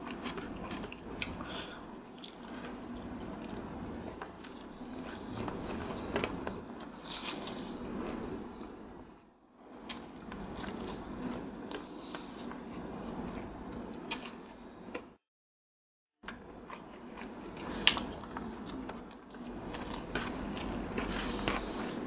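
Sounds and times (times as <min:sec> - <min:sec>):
chewing and wet mouth noises: 0:00.0 - 0:08.8, 0:09.8 - 0:15.1, 0:16.3 - 0:22.0.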